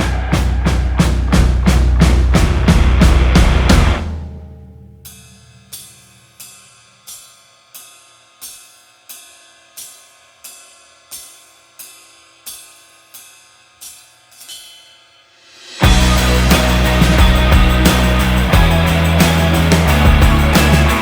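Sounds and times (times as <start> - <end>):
music with heavy bass beat: 0.0 - 4.1, 15.8 - 21.0.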